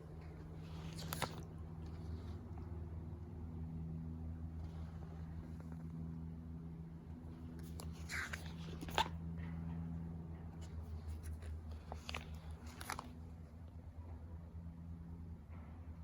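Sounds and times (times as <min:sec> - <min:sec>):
steady low hum: 0:00.0 - 0:16.0
paper rustling: 0:00.5 - 0:02.4, 0:07.6 - 0:09.2, 0:10.6 - 0:13.2.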